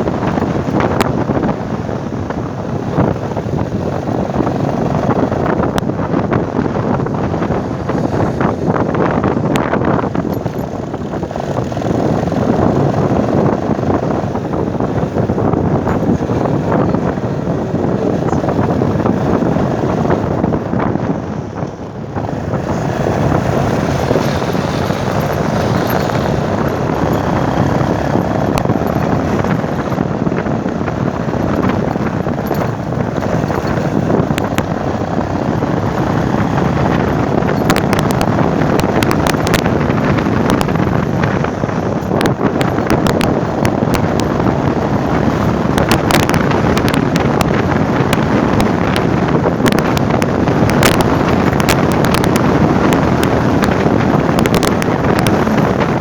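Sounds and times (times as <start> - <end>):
motorcycle running: 0.0 - 56.0
wind buffeting microphone: 0.0 - 56.0
wind crackles on microphone: 0.0 - 56.0.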